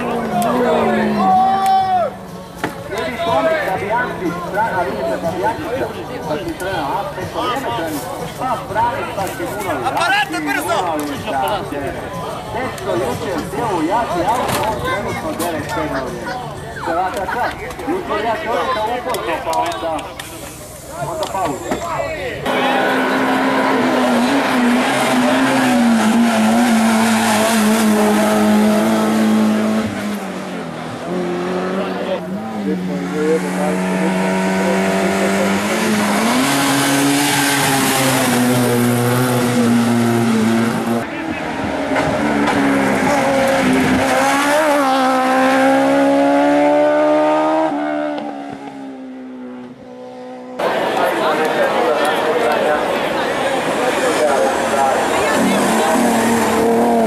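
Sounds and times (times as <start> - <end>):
race car engine at high revs: 22.4 - 57.0.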